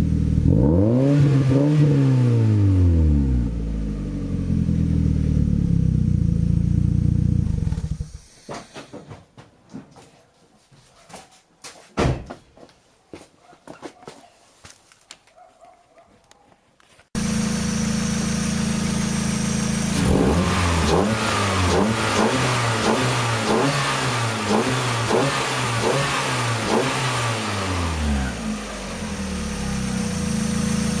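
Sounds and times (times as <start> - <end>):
car engine idling and revving: 0.0 - 8.4, 17.2 - 31.0.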